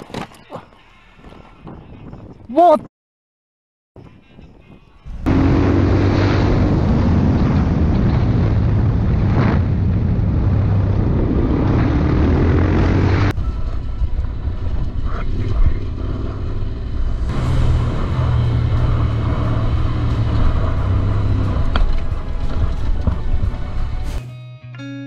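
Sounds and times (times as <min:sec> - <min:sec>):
road noise: 0:05.0 - 0:24.2
loud rushing noise: 0:05.1 - 0:13.3, 0:13.9 - 0:24.1
motorcycle engine running: 0:05.1 - 0:24.2.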